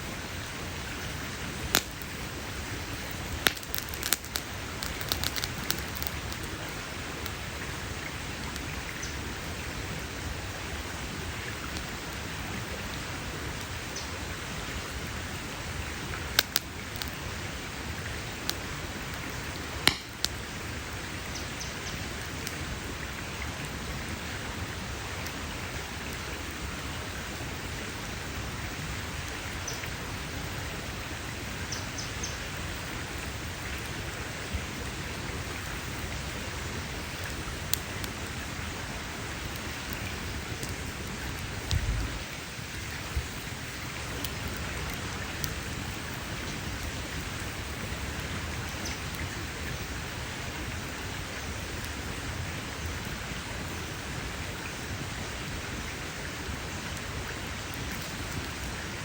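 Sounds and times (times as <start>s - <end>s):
campfire hissing: 0.0s - 59.0s
crackling wood pops: 1.7s - 2.2s, 3.0s - 6.6s, 16.3s - 17.2s, 19.8s - 20.4s, 37.1s - 38.2s.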